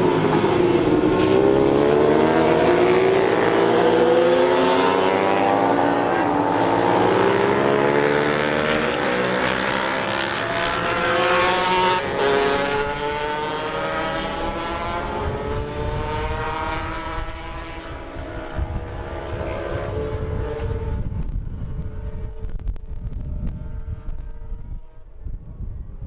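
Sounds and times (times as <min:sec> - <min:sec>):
racing motorcycle engines: 0:00.0 - 0:25.9
low rumble: 0:17.4 - 0:26.0.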